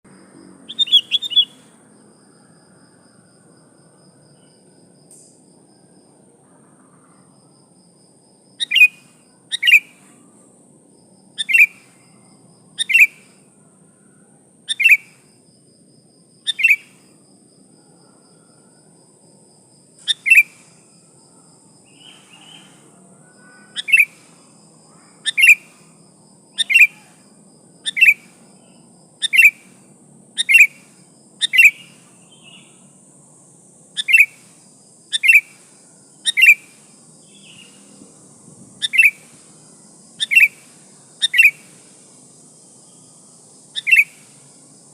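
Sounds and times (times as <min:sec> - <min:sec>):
bird chirping calls: 0:00.6 - 0:01.8, 0:08.6 - 0:10.2, 0:11.4 - 0:12.1, 0:12.7 - 0:13.4, 0:14.7 - 0:15.2, 0:16.5 - 0:17.0, 0:20.0 - 0:20.7, 0:21.9 - 0:25.9, 0:26.5 - 0:27.2, 0:27.8 - 0:29.8, 0:30.4 - 0:32.9, 0:34.0 - 0:34.5, 0:35.1 - 0:38.0, 0:38.8 - 0:39.4, 0:40.2 - 0:41.8, 0:43.7 - 0:44.4.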